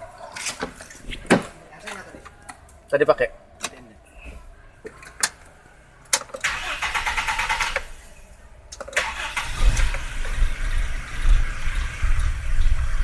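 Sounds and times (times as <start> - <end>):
car engine rumbling: 0.0 - 13.0
starter motor cranking: 6.2 - 7.9, 8.8 - 10.2.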